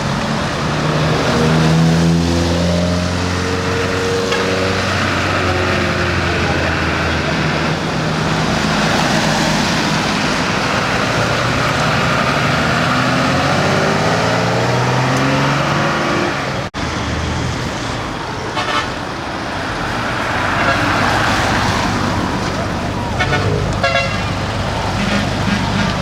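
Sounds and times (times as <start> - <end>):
diesel truck engines pulling away: 0.0 - 26.0
truck horn toots: 18.5 - 19.1, 20.4 - 22.0, 23.0 - 26.0.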